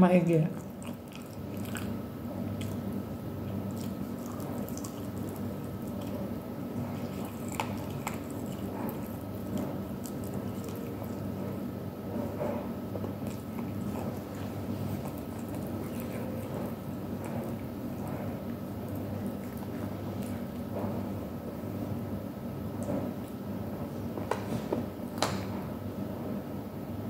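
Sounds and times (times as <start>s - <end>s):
steady low hum: 0.0s - 27.0s
biting and chewing: 0.6s - 21.8s.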